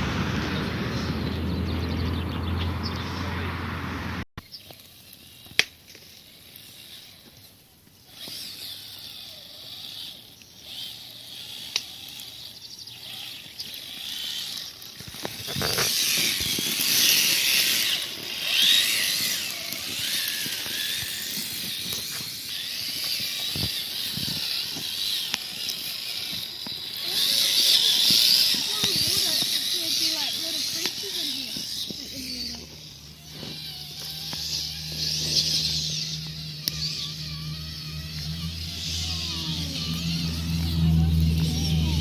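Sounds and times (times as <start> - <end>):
small electric motor whining: 4.4 - 42.0.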